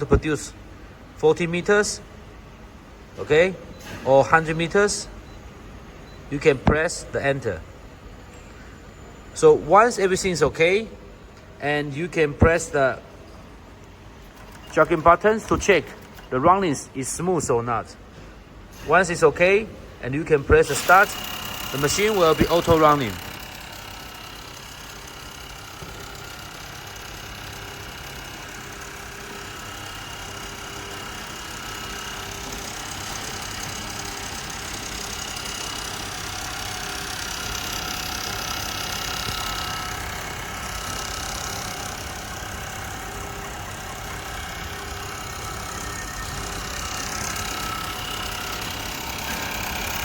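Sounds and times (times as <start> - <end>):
sewing machine running: 14.2 - 16.4, 20.6 - 50.0.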